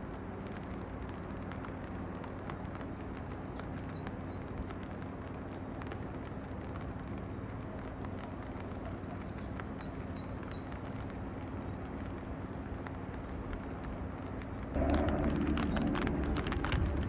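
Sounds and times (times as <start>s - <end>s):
rain pattering: 0.0s - 17.0s
low rumble: 14.7s - 17.0s.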